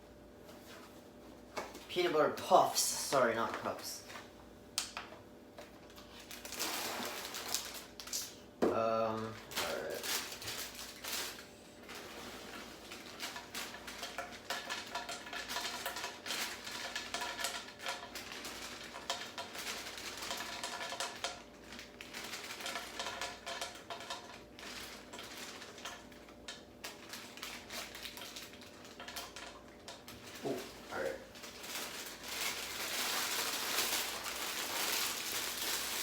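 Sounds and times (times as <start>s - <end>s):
cereal rattling as poured: 6.2s - 8.2s, 9.6s - 36.0s.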